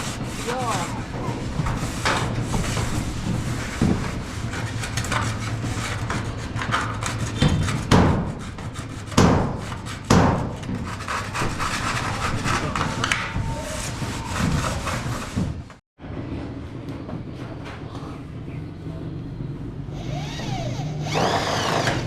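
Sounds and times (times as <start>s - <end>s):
clatter and knocking: 1.1s - 8.4s.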